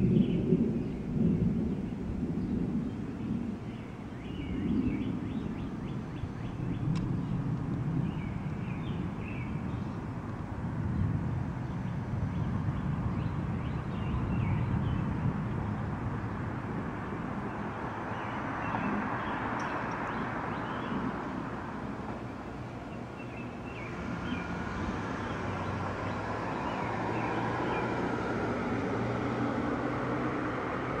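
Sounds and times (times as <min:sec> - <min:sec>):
thunder rolling: 0:00.0 - 0:03.6, 0:04.5 - 0:17.9
storm noise: 0:00.0 - 0:31.0.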